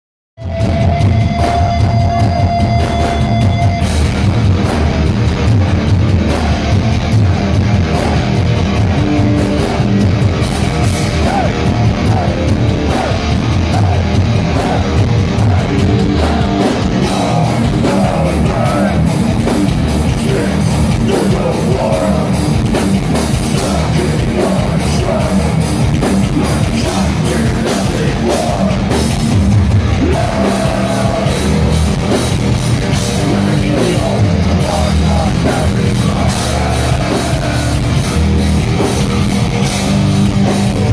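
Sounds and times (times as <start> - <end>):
bass guitar: 0.4 - 40.9
distorted electric guitars: 0.4 - 40.9
pounding drums: 0.5 - 40.9
person singing: 11.1 - 29.2, 29.9 - 38.2.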